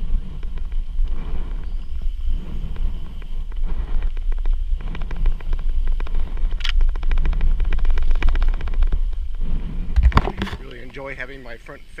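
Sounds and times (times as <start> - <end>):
bicycle rattling over dirt trail: 0.0 - 12.0
wind rumbling on microphone: 0.0 - 12.0.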